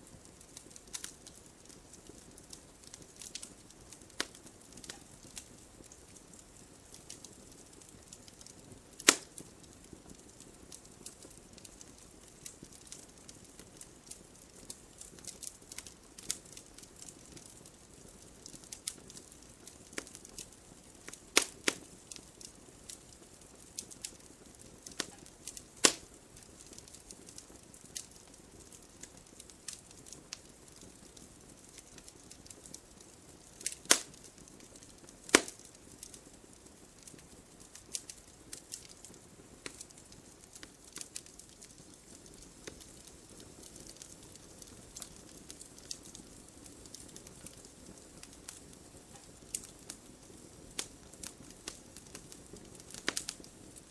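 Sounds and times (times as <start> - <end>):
wood fire crackling: 0.0 - 53.9
loud sharp pops of logs: 9.0 - 9.4, 21.4 - 21.8, 25.8 - 26.1, 33.8 - 34.2, 35.3 - 35.7.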